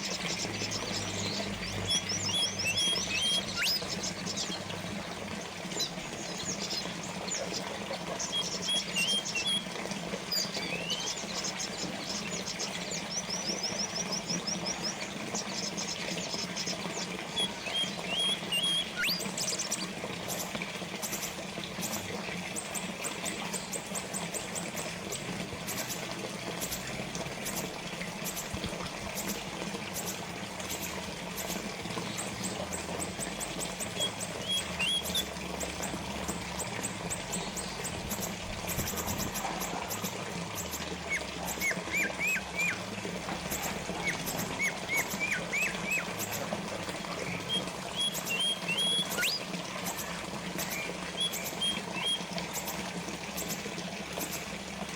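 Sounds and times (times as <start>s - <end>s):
small birds chirping: 0.0s - 21.2s, 30.7s - 35.3s, 47.1s - 52.8s
fountain water trickling: 0.0s - 54.9s.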